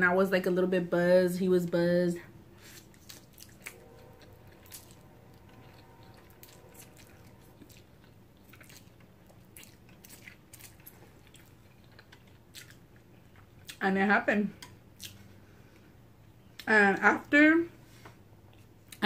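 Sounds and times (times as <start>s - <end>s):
chewing noodles: 2.6s - 13.8s.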